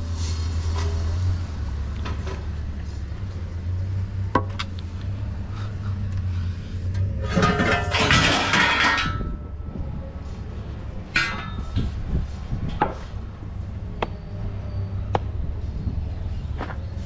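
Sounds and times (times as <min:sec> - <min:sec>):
metal clattering and jangling: 0:07.0 - 0:09.4.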